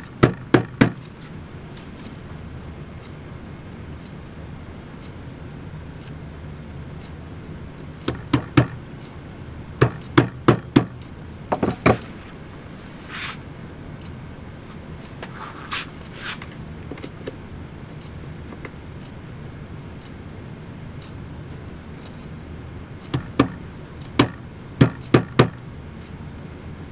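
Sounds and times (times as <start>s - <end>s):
hammer tapping nails into wicker: 0.2s - 1.0s, 8.1s - 8.8s, 9.8s - 12.0s, 23.1s - 23.6s, 24.2s - 25.6s
soft scuffing: 1.1s - 2.2s, 11.6s - 13.4s, 14.7s - 16.5s.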